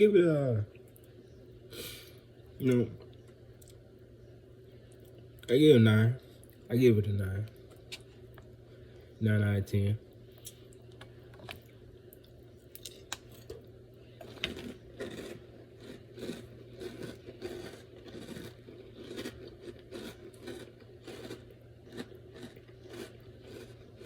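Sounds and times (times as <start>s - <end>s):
person chewing crunchy cereal: 14.1s - 24.0s.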